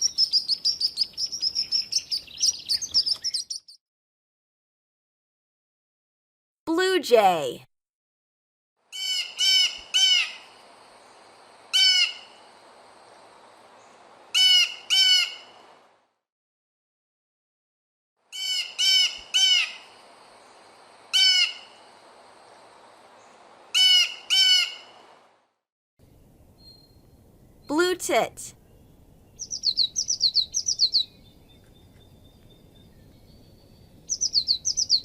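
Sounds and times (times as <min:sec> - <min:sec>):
blue jay harsh calls: 0:08.9 - 0:10.5, 0:11.7 - 0:12.4, 0:14.3 - 0:15.5, 0:18.3 - 0:19.9, 0:21.1 - 0:21.8, 0:23.7 - 0:25.0, 0:29.3 - 0:31.2, 0:34.1 - 0:35.0.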